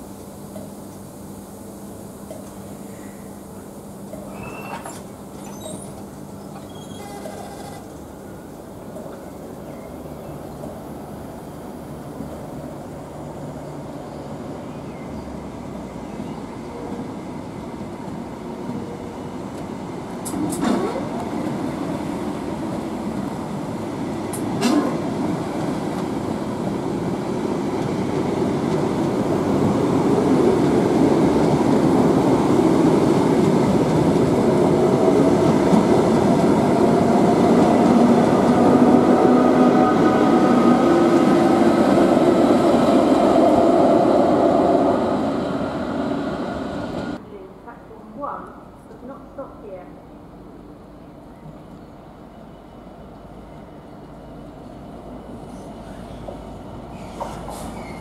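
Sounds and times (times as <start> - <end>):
brief high squeals: 4.3 - 6.0, 6.6 - 7.8, 56.9 - 58.0
train wheels rumbling on rails: 15.8 - 47.2, 51.4 - 58.0.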